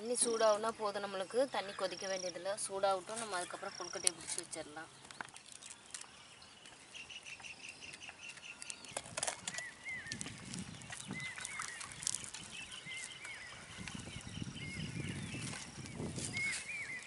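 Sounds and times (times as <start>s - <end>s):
birds chirping: 0.0s - 17.0s
whistled bird notes: 5.9s - 17.0s.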